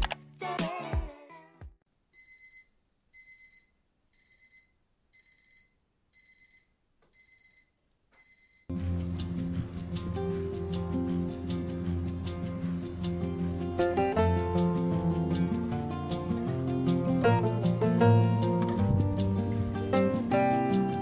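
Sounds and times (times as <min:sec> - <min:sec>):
electronic alarm beeping: 0:02.2 - 0:08.7
intro music: 0:08.7 - 0:21.0
soft guitar music: 0:08.7 - 0:21.0.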